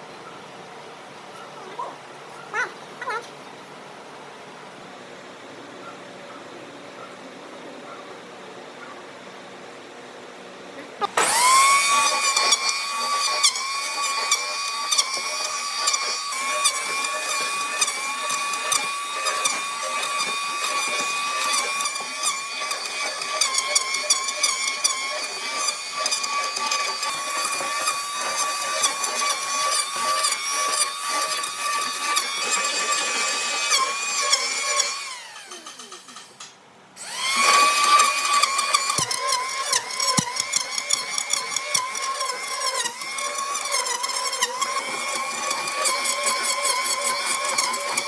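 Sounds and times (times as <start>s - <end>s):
power tool motor whining: 11.0s - 36.4s, 37.0s - 48.0s.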